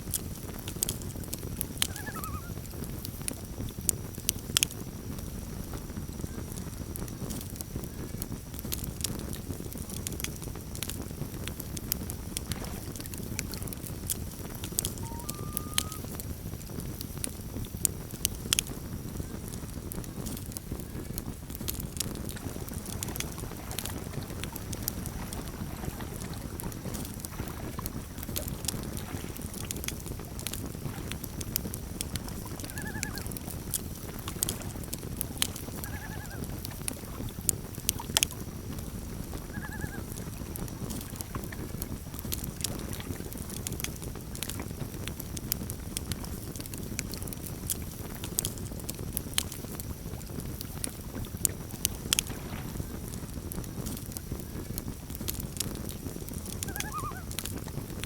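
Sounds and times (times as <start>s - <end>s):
campfire crackling and popping: 0.0s - 58.0s
low rumble of burning: 0.0s - 58.0s
quavering loon calls: 1.8s - 2.6s, 14.9s - 16.1s, 32.6s - 33.3s, 35.8s - 36.5s, 39.5s - 40.1s, 56.6s - 57.3s.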